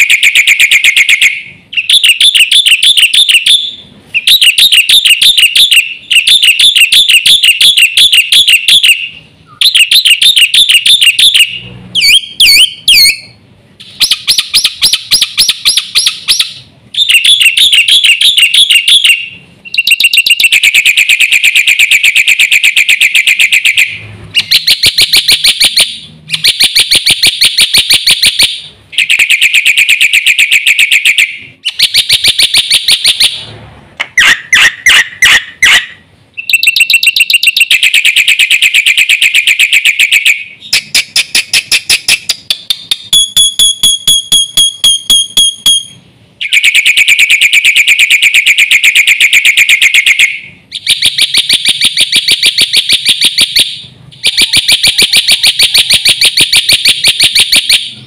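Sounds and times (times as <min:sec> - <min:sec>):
bird beep-like notes: 0:00.0 - 0:33.4, 0:34.2 - 0:58.0
starling singing chattering trills: 0:00.0 - 0:33.4.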